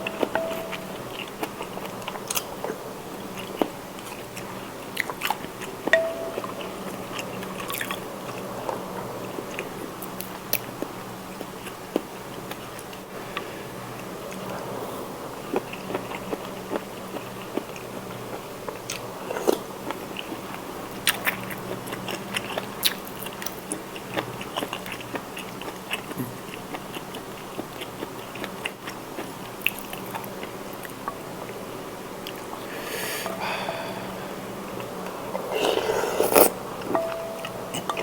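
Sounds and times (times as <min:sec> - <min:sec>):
steady low hum: 0:00.0 - 0:03.9, 0:30.2 - 0:35.6, 0:36.5 - 0:38.0
chewing and mouth smacking: 0:15.5 - 0:31.1.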